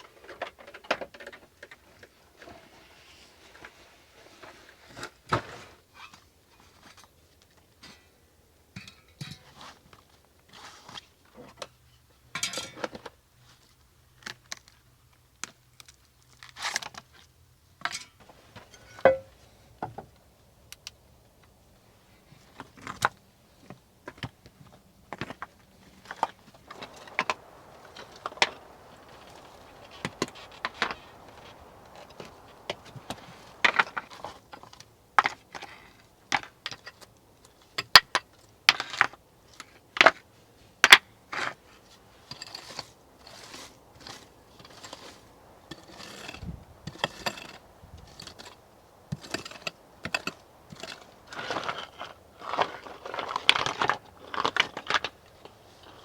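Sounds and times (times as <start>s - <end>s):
objects clattering when handled: 22.4s - 37.1s.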